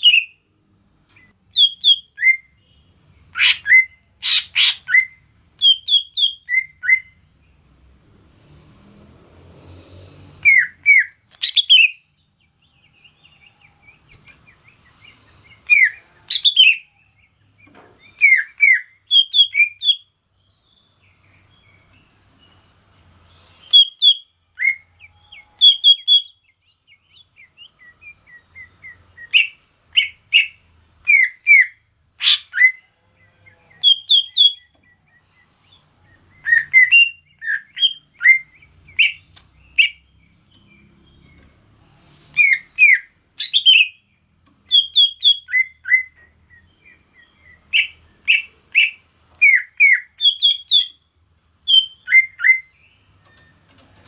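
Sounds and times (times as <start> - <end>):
bird whistling notes: 3.3 - 7.2, 10.4 - 12.0, 15.0 - 16.9, 18.1 - 20.0, 36.3 - 40.1, 42.3 - 44.0, 44.7 - 51.0, 51.7 - 52.8.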